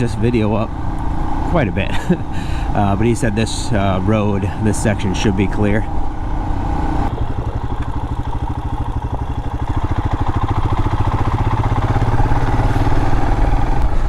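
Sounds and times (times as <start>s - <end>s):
motorcycle engine pulling away: 5.0s - 14.0s.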